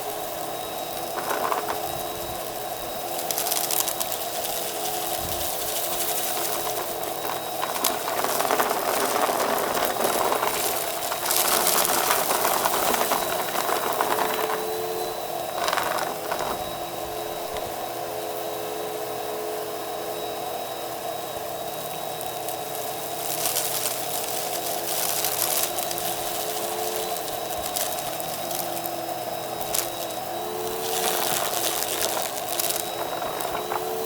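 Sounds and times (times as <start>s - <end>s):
vacuum cleaner running: 0.0s - 34.0s
brushroll crunching debris: 0.9s - 17.7s, 22.2s - 34.0s.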